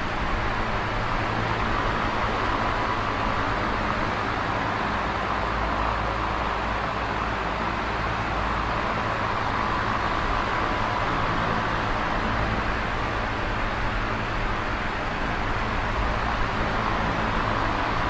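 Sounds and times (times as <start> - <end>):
electric fan air rushing: 0.0 - 18.0.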